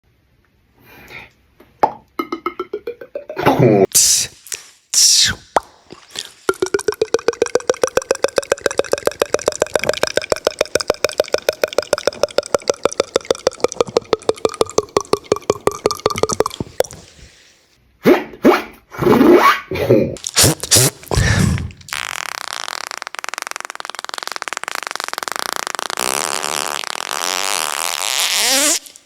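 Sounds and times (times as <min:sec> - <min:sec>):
beatboxer mouth pops: 0:02.2 - 0:17.3, 0:20.2 - 0:29.0
vocal effect with sliding pitch: 0:06.5 - 0:16.7.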